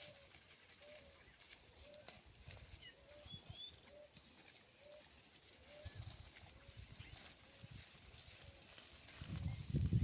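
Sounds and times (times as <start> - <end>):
cattle chewing dry straw: 0.0 - 10.0.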